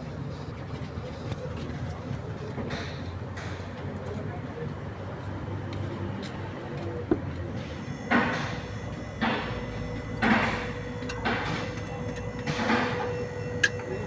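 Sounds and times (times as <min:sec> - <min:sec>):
wrench rasping strokes: 0:08.0 - 0:14.0.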